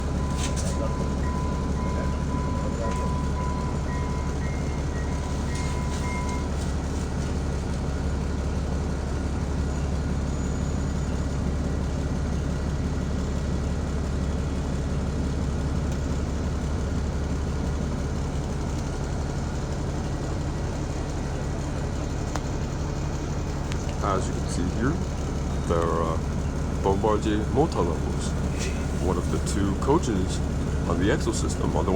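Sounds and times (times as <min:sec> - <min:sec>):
steady high tone: 0:00.0 - 0:06.6
train rumbling past: 0:00.0 - 0:31.9.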